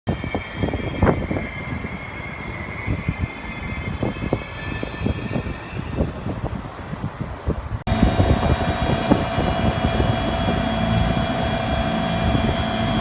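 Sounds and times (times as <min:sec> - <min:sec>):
machinery humming and whining: 0:07.9 - 0:13.0.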